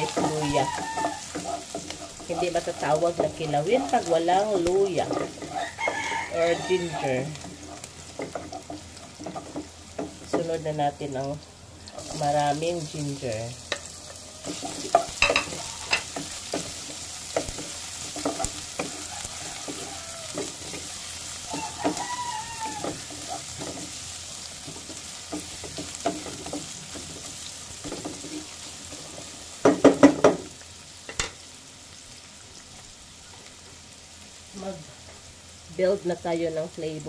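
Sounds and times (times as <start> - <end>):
wooden spatula scraping pan: 0.0 - 10.6, 13.7 - 30.1
food sizzling in oil: 0.0 - 37.0.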